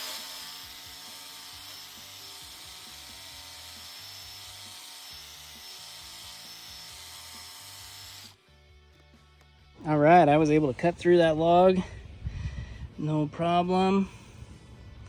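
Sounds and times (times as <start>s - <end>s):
reciprocating saw cutting wood: 0.0s - 8.4s
background music: 0.1s - 15.0s.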